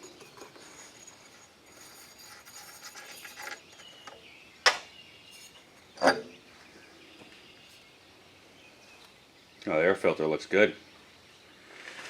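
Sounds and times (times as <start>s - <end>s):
rustling and scraping: 0.0s - 4.4s, 5.2s - 7.9s, 11.6s - 12.0s.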